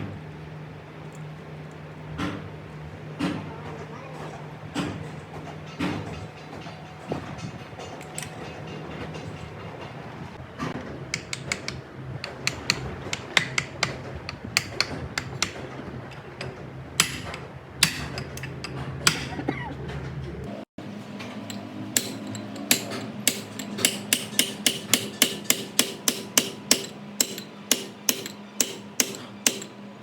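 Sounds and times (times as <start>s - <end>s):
metal tools clinking: 21.4s - 29.8s.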